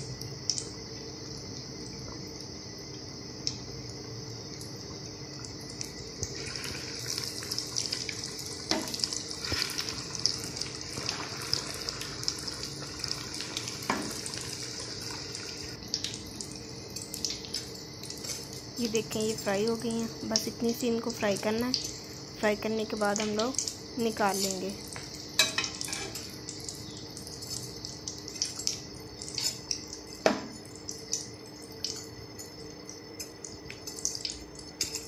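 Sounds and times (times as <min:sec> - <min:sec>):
food sizzling in hot oil: 0:00.0 - 0:35.0.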